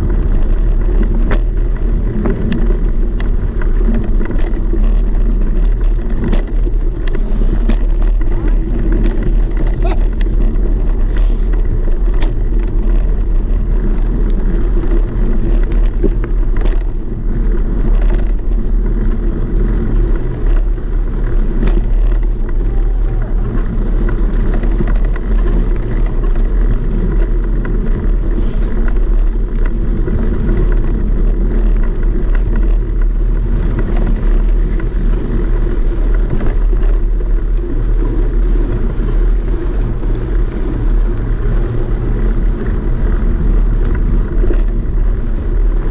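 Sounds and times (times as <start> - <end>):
engine low rumble: 0.0 - 45.9.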